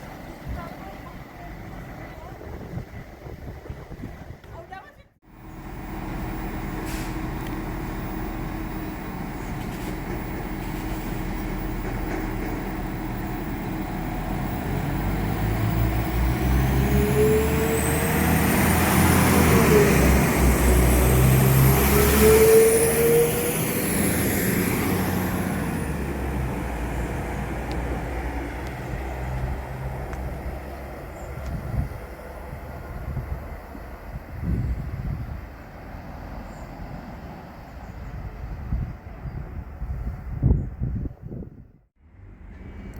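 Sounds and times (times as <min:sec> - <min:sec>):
diesel train passing: 0:00.0 - 0:04.4, 0:05.2 - 0:40.5
high whine of train: 0:05.2 - 0:42.9.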